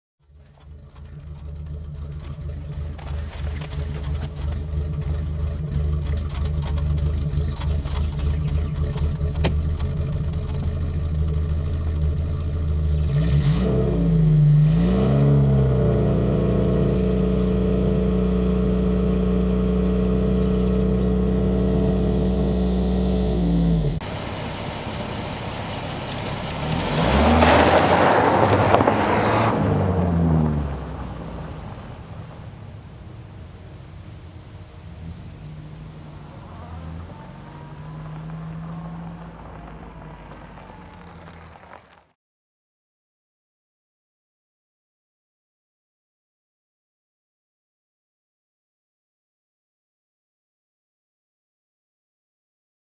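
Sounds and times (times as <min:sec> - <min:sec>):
car engine revving: 0:00.2 - 0:42.2
car accelerating past: 0:00.3 - 0:42.2.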